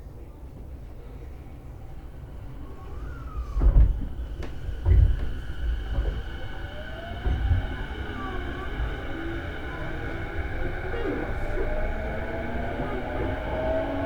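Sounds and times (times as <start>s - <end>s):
train interior rumble: 0.0s - 14.0s
wheels thumping on track: 3.3s - 14.0s.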